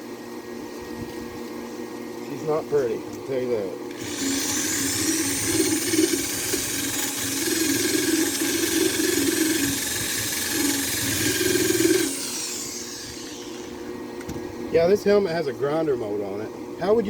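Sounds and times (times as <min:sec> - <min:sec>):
angle grinder grinding steel: 0:03.9 - 0:13.9.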